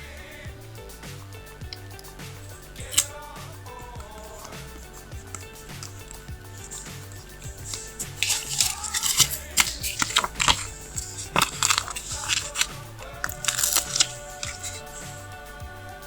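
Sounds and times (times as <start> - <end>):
background music with steady beat: 0.0 - 16.0
paper stickers rustling and peeling: 1.8 - 3.2, 4.0 - 15.3.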